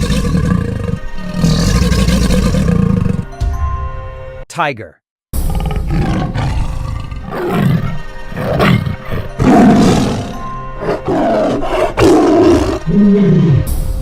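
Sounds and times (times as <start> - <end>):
tiger roaring and growling: 0.0 - 3.3, 5.4 - 13.8.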